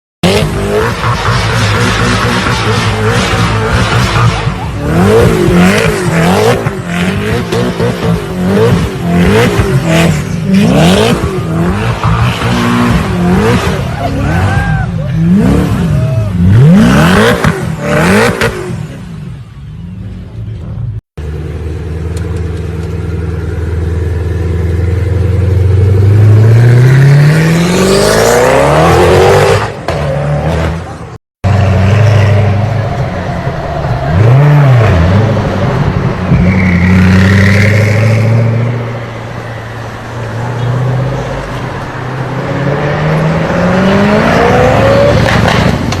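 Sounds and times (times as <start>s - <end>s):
car engine revving hard: 0.2s - 13.9s, 15.2s - 18.8s, 25.6s - 32.6s, 42.5s - 46.0s.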